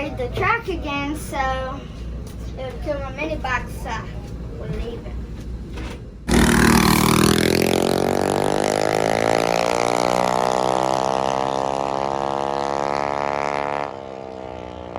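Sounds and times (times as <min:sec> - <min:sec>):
mini bike engine at full throttle: 0:06.3 - 0:14.9.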